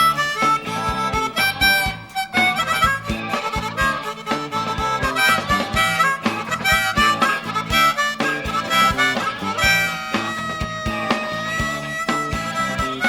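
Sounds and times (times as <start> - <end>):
guitar: 0.0 - 13.0
melodic lead line: 0.0 - 13.0
steady drum beat: 0.0 - 13.0.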